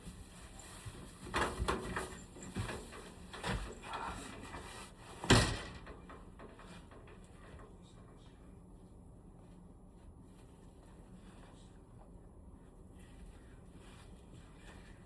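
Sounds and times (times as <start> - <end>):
knocks and clatters of handling: 0.2 - 8.2.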